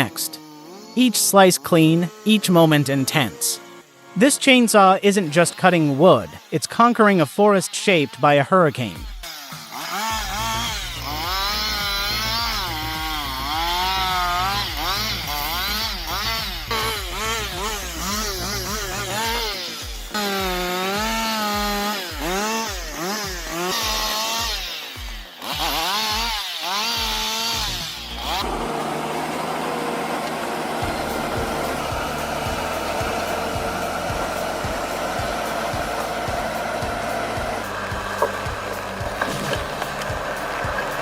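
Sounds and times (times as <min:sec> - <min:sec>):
chainsaw revving and cutting wood: 0:00.0 - 0:41.0.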